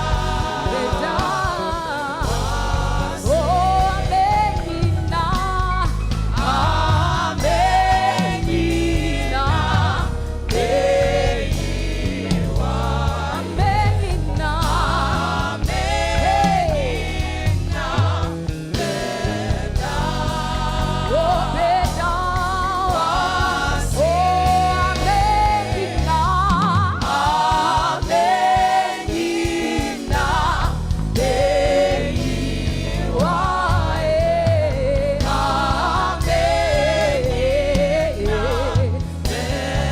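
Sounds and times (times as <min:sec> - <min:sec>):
band with steady beat and bass: 0:00.0 - 0:39.9
gospel choir singing: 0:00.0 - 0:39.9.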